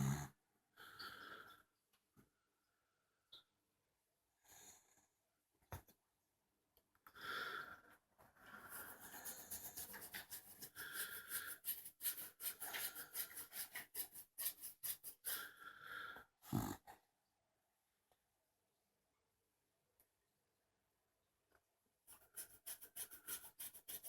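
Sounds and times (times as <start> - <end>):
dog snoring with whistle: 0.0 - 0.4, 16.4 - 16.8.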